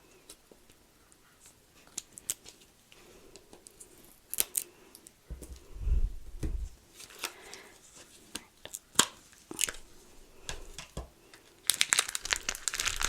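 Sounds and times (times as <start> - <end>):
dull handling thump: 5.3 - 6.8
plastic packaging being cut open: 11.7 - 13.0.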